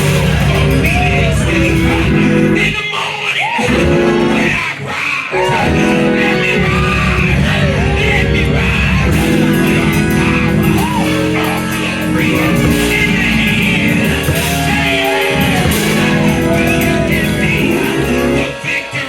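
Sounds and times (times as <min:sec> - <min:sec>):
people singing and shouting: 0:00.0 - 0:19.0
guitar: 0:05.4 - 0:19.0
live band music: 0:05.4 - 0:19.0.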